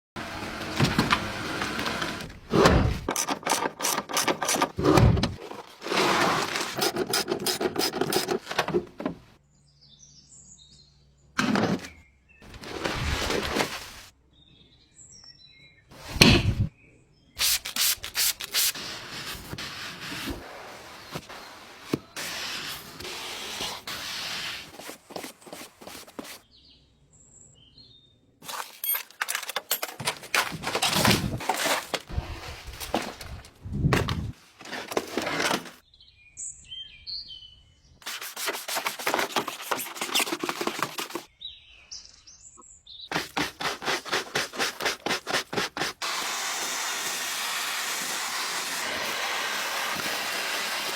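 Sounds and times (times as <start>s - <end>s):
scrubbing on a car: 43.1s - 50.9s.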